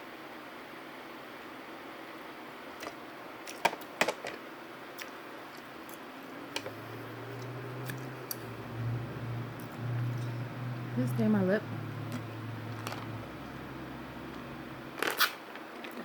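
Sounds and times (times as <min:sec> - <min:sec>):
low steady hum: 0:04.9 - 0:15.2.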